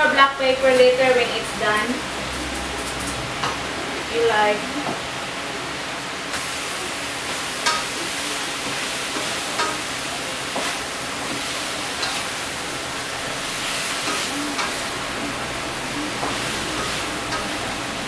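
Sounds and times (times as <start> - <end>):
food sizzling in a wok: 0.0 - 18.0.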